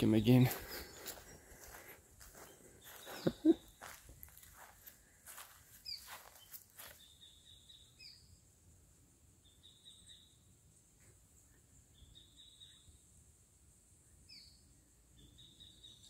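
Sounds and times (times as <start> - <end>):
faint high bird calls: 0.1 - 4.0, 5.3 - 8.3, 11.4 - 13.0.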